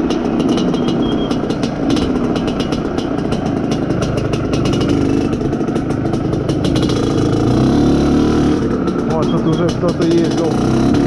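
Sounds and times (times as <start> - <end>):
two-stroke motorcycle engine running: 0.0 - 11.0.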